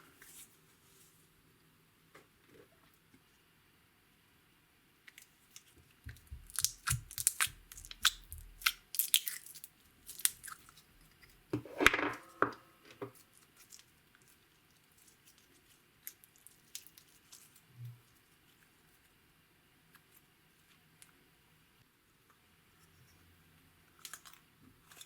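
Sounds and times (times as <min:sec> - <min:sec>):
slime crackling and popping: 0:06.1 - 0:10.8
slime squelching: 0:06.1 - 0:10.8.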